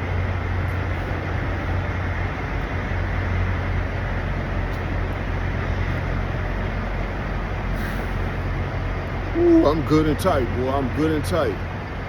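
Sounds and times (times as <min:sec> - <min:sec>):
trucks idling: 0:00.0 - 0:12.0.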